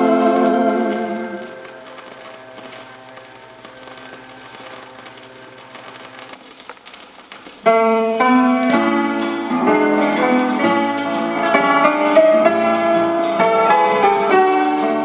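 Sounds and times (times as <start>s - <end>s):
piano playing chords: 7.7s - 15.0s.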